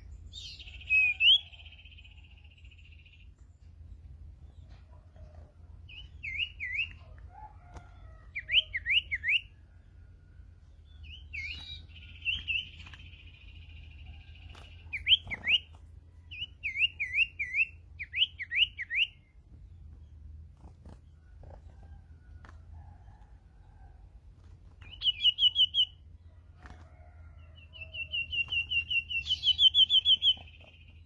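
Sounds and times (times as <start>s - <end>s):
buzzy bird trill: 27.6s - 31.0s.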